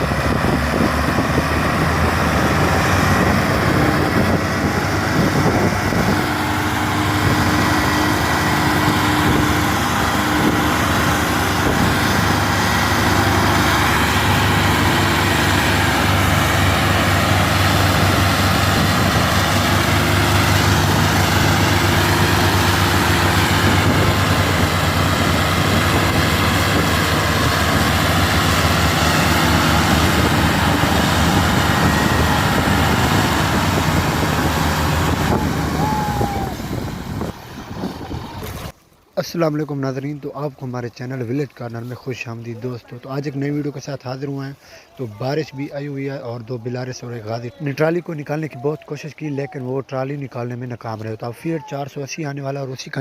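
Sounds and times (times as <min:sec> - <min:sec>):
tractor diesel engine running: 0:00.0 - 0:38.8.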